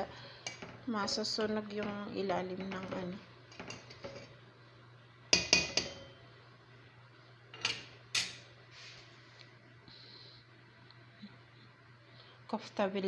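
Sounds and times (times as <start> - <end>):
spoon knocking against cooking pot: 5.4 - 6.1.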